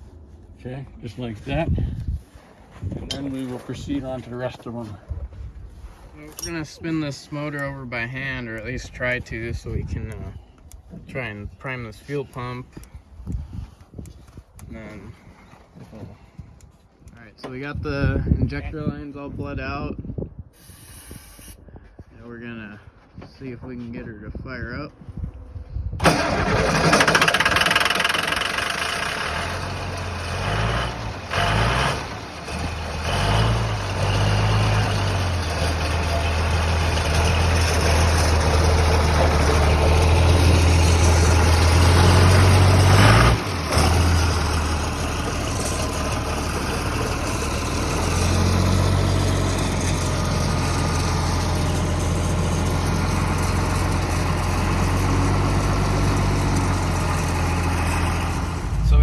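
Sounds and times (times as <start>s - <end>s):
diesel engine running: 26.0s - 59.0s.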